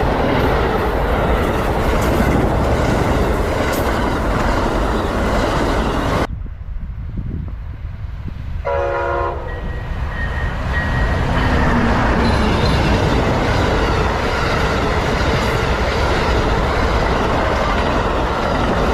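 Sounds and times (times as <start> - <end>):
train passing close by: 0.0 - 18.9
train horn blast: 8.6 - 12.8.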